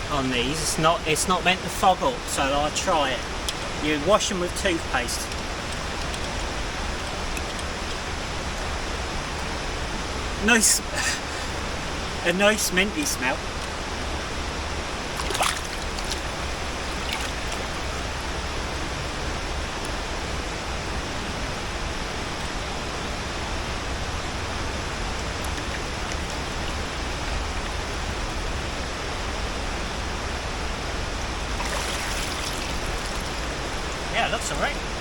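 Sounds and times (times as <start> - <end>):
river rushing: 0.0 - 22.4, 31.2 - 35.0.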